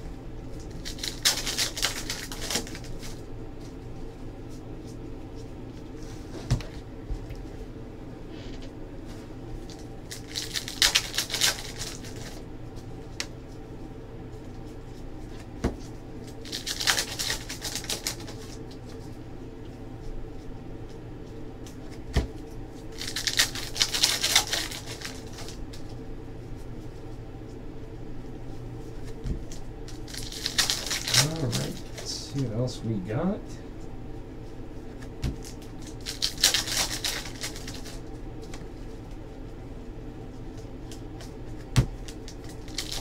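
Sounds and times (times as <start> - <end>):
card wrappers rustling: 0.6 - 3.2, 9.6 - 12.4, 15.8 - 19.1, 21.2 - 26.0, 28.8 - 32.7, 34.4 - 39.4, 40.4 - 43.0.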